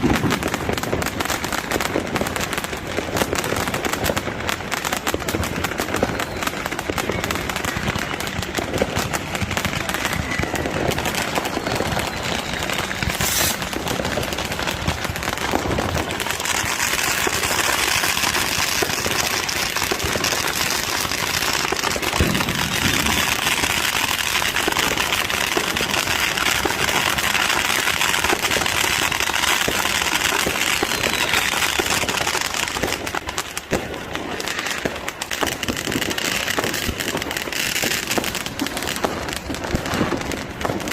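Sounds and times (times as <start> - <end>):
fireworks crackling and banging: 0.0 - 40.9.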